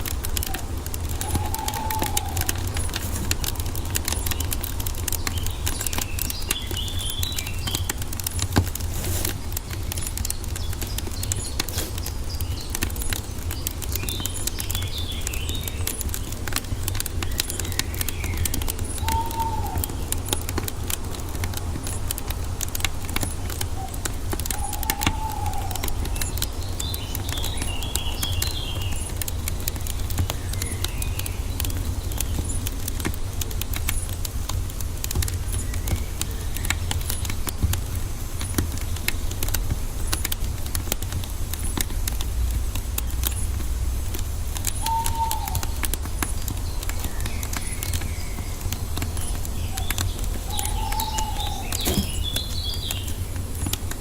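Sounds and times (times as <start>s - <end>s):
low bird calls: 0.0s - 8.4s, 9.0s - 20.9s, 22.8s - 32.8s, 43.0s - 54.0s
birds chirping: 0.0s - 54.0s
wood fire crackling and popping: 0.0s - 54.0s.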